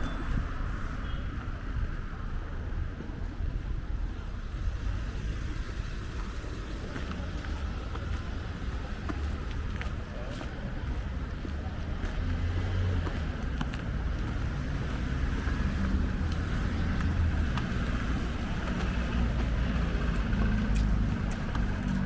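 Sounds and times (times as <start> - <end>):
town street noise: 0.0 - 22.0.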